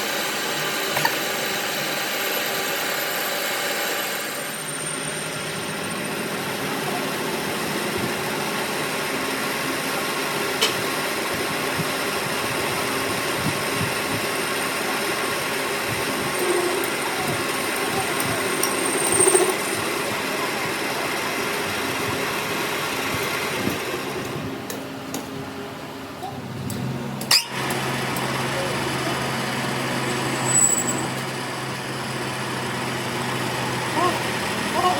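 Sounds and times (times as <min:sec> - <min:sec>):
workshop machine humming: 0:00.0 - 0:34.9.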